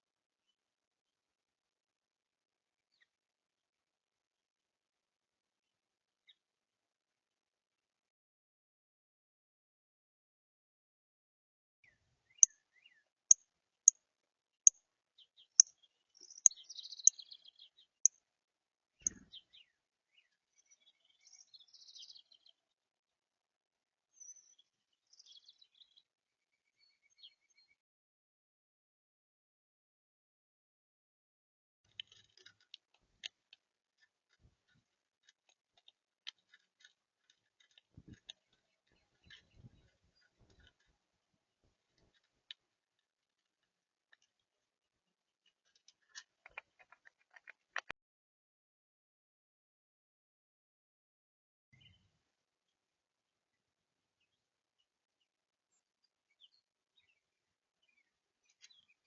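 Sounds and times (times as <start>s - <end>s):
birds pecking seed: 31.9s - 44.6s, 45.5s - 47.9s.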